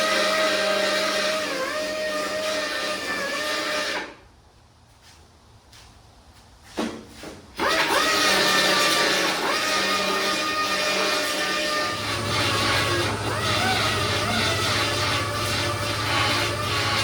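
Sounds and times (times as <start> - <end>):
power tool grinding metal: 0.0 - 4.1, 7.6 - 17.0.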